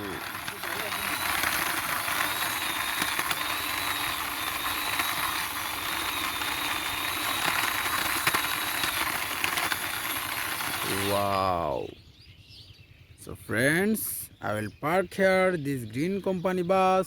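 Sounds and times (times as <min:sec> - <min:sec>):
toy bus wheels rolling: 0:00.0 - 0:11.6.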